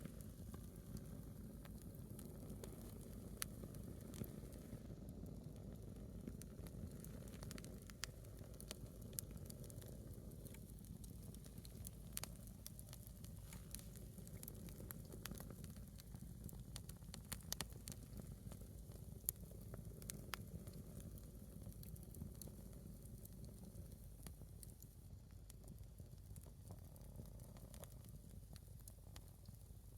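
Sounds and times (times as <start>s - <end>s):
low steady background noise: 0.0s - 29.9s
wood fire crackling and popping: 0.0s - 29.9s.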